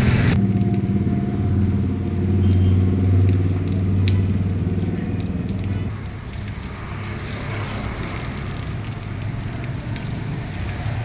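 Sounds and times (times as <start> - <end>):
heavy rain hissing: 0.0 - 0.4, 1.8 - 11.0
vehicle engine running: 0.0 - 6.4
raindrop splashes: 0.3 - 11.0.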